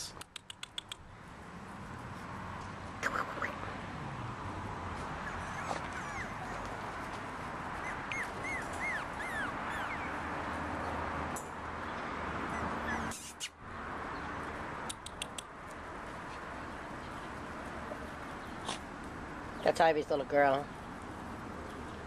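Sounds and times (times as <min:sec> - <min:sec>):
puppies whimpering: 0:05.2 - 0:06.8, 0:07.8 - 0:10.2, 0:12.5 - 0:13.3.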